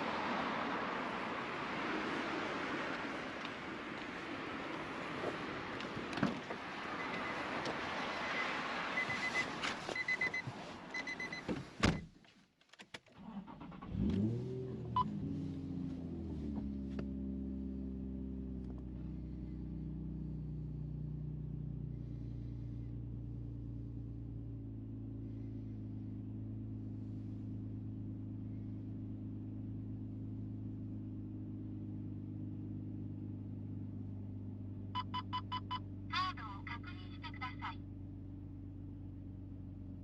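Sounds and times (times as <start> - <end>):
car engine idling: 13.2 - 40.0.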